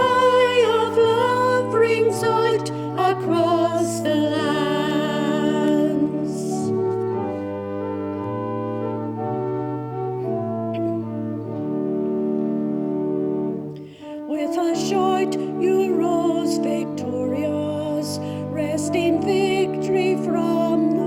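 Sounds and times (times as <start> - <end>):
people singing: 0.0 - 6.7
church organ chords: 0.0 - 21.0.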